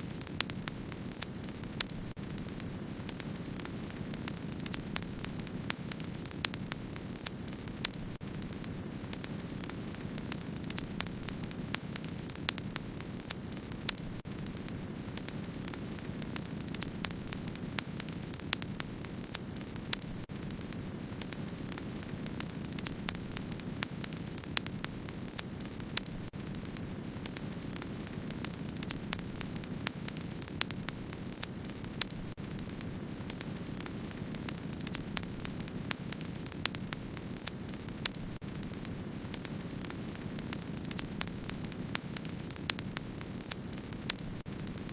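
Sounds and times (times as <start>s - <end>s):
low rumble of flames: 0.0s - 44.9s
wood fire crackling: 0.0s - 44.9s.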